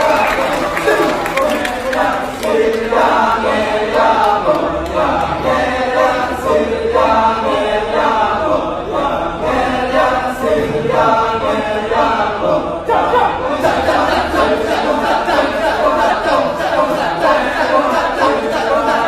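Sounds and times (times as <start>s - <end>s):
chorus of voices chanting: 0.0s - 19.0s.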